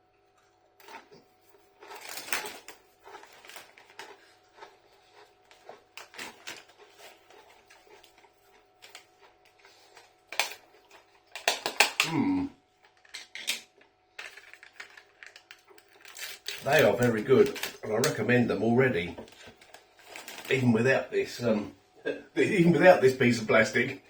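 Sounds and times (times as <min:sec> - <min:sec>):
chewing crunchy chips: 0:00.4 - 0:18.3.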